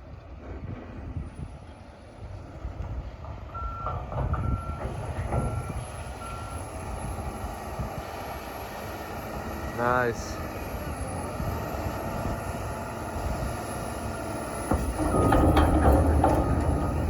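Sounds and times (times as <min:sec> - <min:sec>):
diesel engine running: 0:02.8 - 0:17.0
reversing alarm beeps: 0:03.6 - 0:07.2
knocks: 0:03.8 - 0:05.8, 0:14.6 - 0:17.0.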